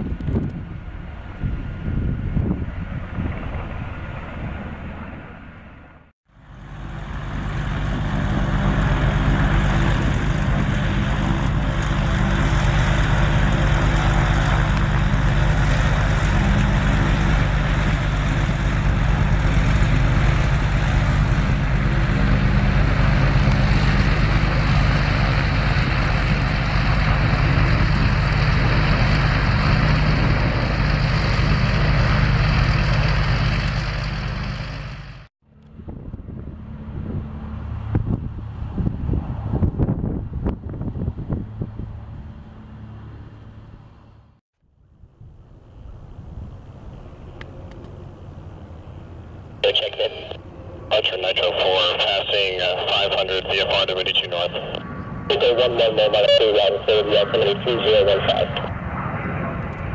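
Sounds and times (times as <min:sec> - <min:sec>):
engine humming: 0:00.0 - 0:39.6.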